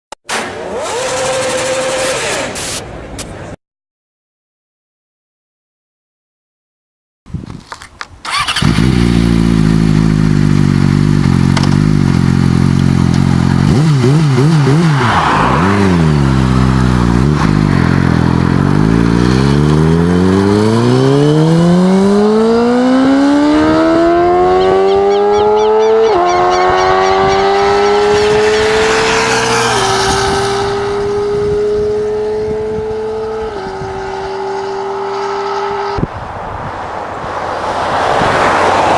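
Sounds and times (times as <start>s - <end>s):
motorcycle engine revving: 0.3s - 2.6s, 8.3s - 36.1s
motorcycle accelerating: 0.4s - 2.6s, 8.3s - 36.8s.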